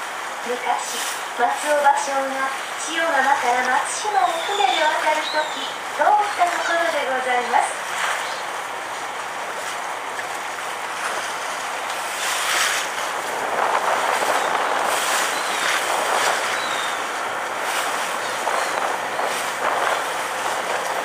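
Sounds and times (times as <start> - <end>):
water rushing along hull: 0.0 - 21.0
wind on microphone: 9.4 - 21.0.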